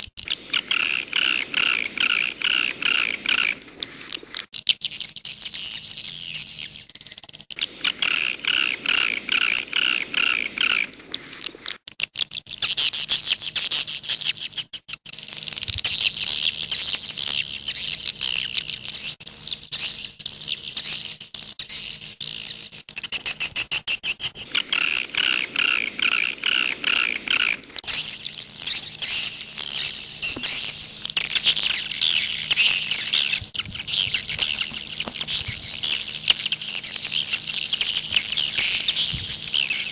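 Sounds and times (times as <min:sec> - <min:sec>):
swiftlets twittering: 0:15.1 - 0:39.9.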